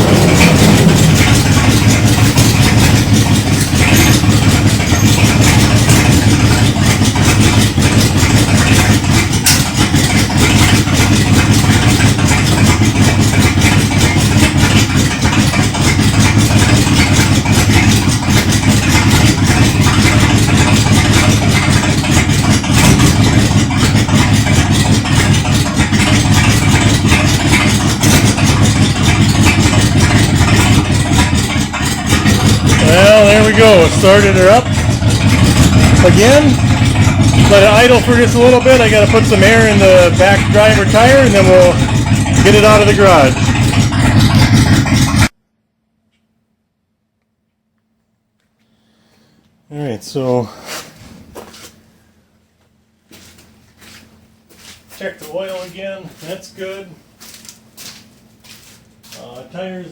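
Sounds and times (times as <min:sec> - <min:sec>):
truck engine idling: 0:00.0 - 0:45.3.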